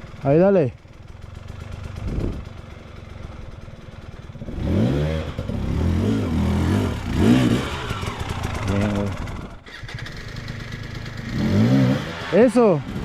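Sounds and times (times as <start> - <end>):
dirt bike engine revving: 4.4 - 13.0.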